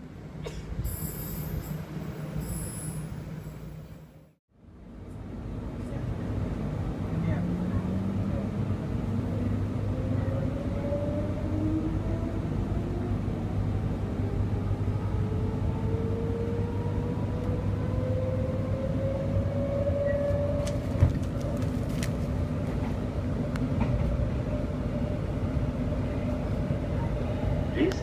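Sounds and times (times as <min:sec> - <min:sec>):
electric train whine: 0:00.0 - 0:21.2
train wheels rumbling on track: 0:05.0 - 0:28.0.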